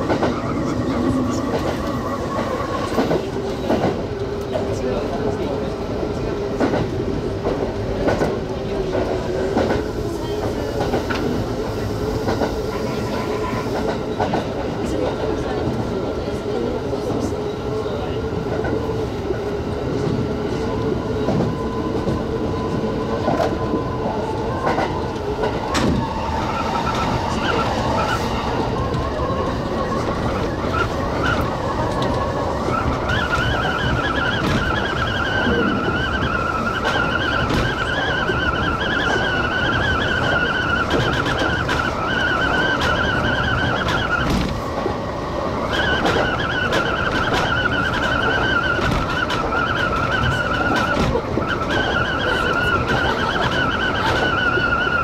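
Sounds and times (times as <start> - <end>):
electric train running: 17.9 - 55.0.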